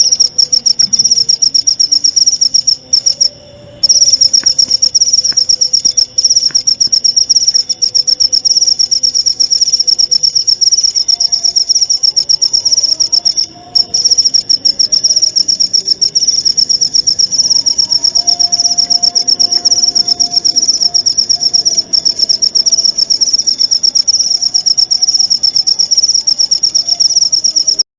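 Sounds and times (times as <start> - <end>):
cricket chirping: 0.0 - 27.8.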